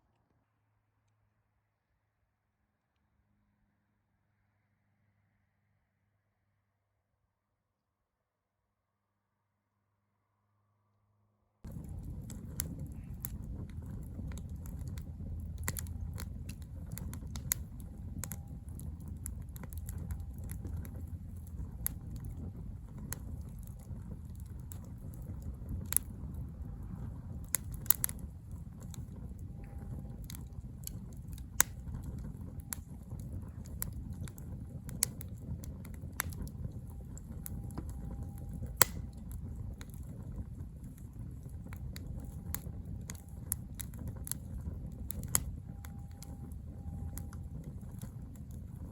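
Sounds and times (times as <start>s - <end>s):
campfire crackling and popping: 11.6s - 48.9s
low steady rumble: 11.6s - 48.9s.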